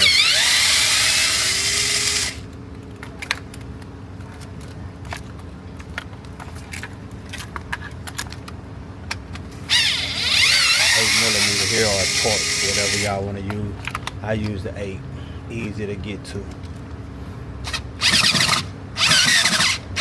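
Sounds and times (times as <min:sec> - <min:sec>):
impact gun whining: 0:00.0 - 0:02.5, 0:09.6 - 0:13.2, 0:17.6 - 0:20.0.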